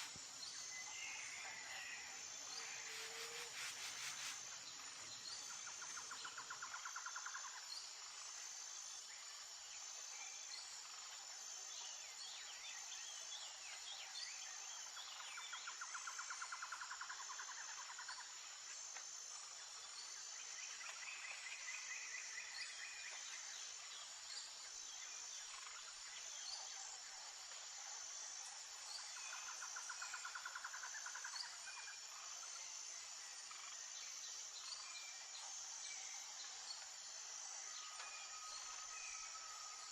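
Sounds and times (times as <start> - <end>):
running water hiss: 0.0 - 0.9, 2.4 - 5.9
insect chirping: 0.0 - 39.9
buzzy trilling call: 2.8 - 4.4.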